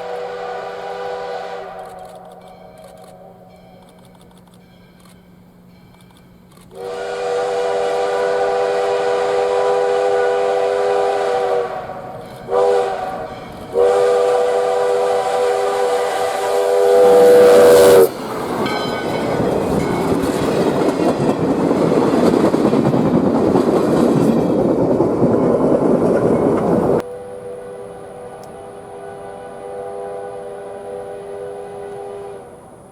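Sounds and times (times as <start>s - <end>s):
steam whistle blowing: 0.0s - 4.0s, 6.7s - 19.0s, 27.0s - 32.9s
steam locomotive rushing past: 0.0s - 32.9s.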